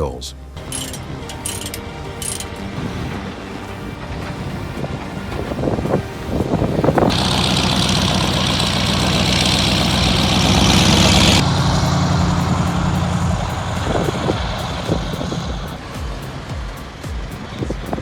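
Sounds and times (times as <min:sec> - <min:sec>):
loud steady hiss: 0:00.0 - 0:18.0
truck diesel engine running: 0:00.4 - 0:18.0.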